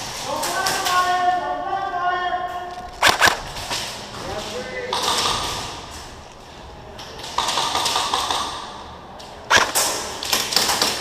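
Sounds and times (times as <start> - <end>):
sharp crack: 2.8 - 4.0, 9.4 - 11.0
airsoft guns firing: 3.0 - 3.6, 9.5 - 11.0.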